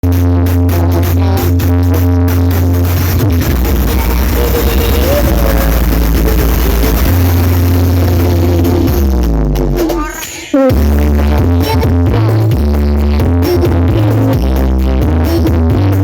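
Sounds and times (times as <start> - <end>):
electronic dance music: 0.0 - 16.0
falling tone: 3.2 - 11.4.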